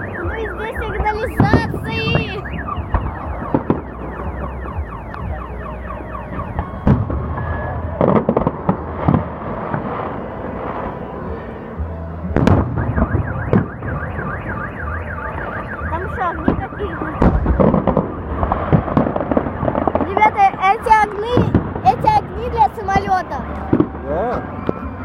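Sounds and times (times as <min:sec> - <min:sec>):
car alarm wailing: 0:00.0 - 0:09.0, 0:12.4 - 0:25.0
fireworks bursts banging: 0:00.0 - 0:25.0.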